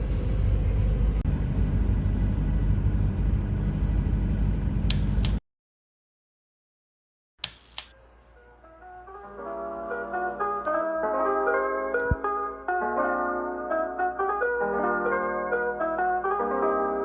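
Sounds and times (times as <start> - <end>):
road vehicle rumble: 0.0 - 5.4
sharp clicks: 4.9 - 5.4, 7.4 - 7.9.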